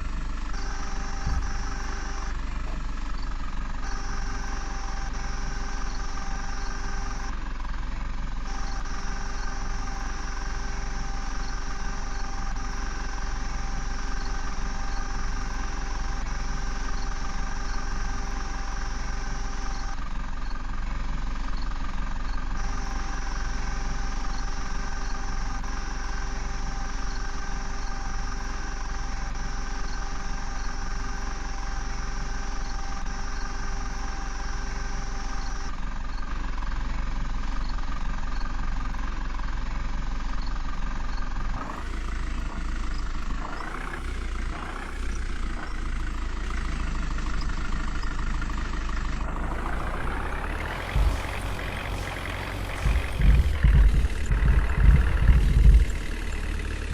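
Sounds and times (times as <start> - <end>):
diesel engines running: 0.0 - 56.9.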